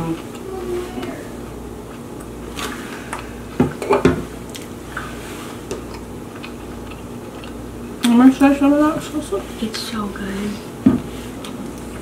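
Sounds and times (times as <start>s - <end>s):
chewing and mouth sounds: 4.5s - 8.2s.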